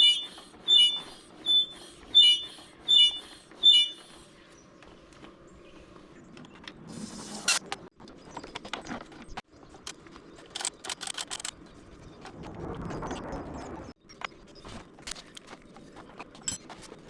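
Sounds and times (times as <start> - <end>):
suspension strut squeaks and knocks: 0.0 - 4.2.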